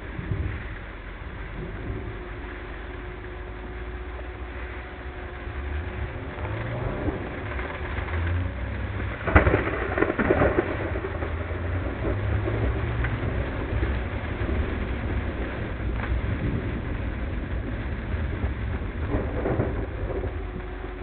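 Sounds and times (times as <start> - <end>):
car driving through heavy rain: 0.0 - 21.0
close thunderclap: 6.2 - 21.0.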